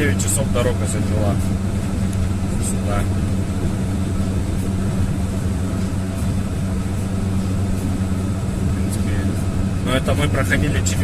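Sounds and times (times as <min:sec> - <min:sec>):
tyre and road noise: 0:00.0 - 0:11.0
van engine running: 0:00.0 - 0:11.0.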